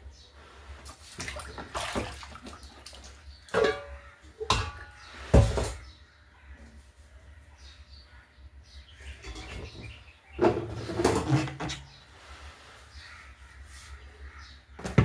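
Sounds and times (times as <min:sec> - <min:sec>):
water splashing in a basin: 0:00.8 - 0:04.8.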